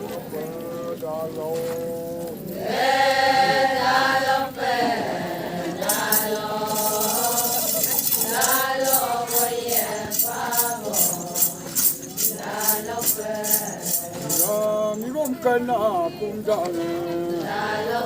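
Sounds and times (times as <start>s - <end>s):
group chanting in unison: 2.6s - 14.6s, 16.0s - 18.0s
jingling metal rattle: 5.8s - 15.7s.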